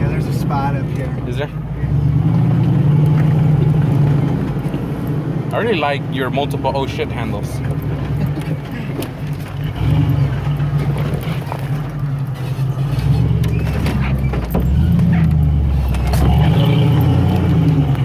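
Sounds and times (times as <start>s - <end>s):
vehicle engine in low gear: 0.0s - 18.0s
vehicle body knocks and rattles: 7.6s - 16.6s.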